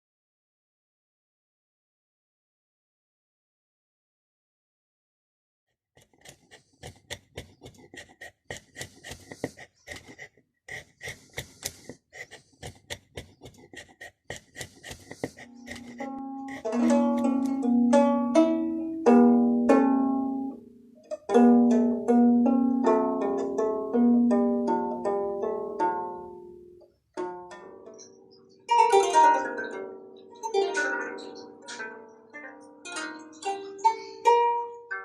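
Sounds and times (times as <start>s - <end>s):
lyre strings plucked: 15.5s - 28.0s.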